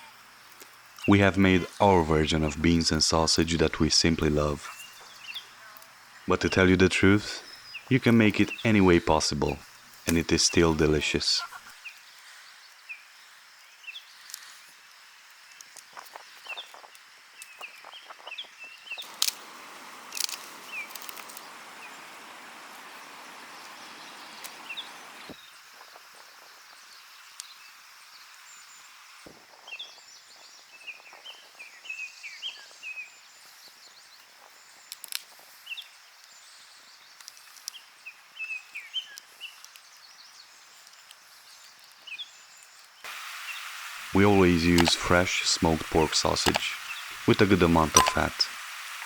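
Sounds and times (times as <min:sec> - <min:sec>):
small birds chirping: 0:00.0 - 0:19.3, 0:20.1 - 0:22.2, 0:23.0 - 0:29.0, 0:29.6 - 0:49.0
steady rushing hiss: 0:00.0 - 0:38.2, 0:43.0 - 0:49.0
sharp clicks: 0:46.2 - 0:47.0.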